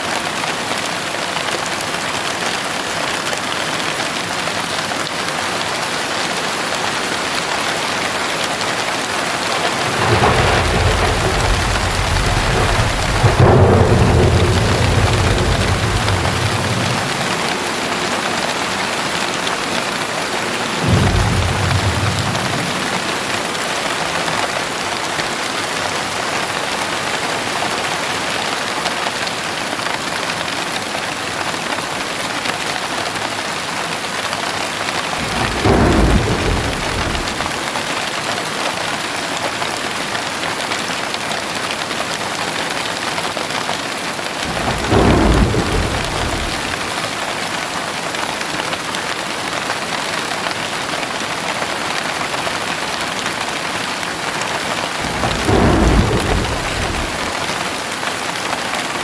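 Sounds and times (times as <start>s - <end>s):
heavy rain pouring: 0.0s - 59.0s
thunder rumbles: 7.0s - 25.6s, 34.8s - 37.8s, 44.4s - 47.4s, 54.7s - 58.1s.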